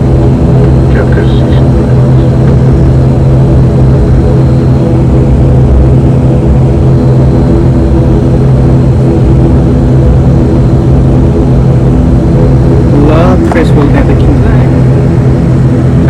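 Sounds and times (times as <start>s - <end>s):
turboprop engines droning: 0.0s - 16.0s.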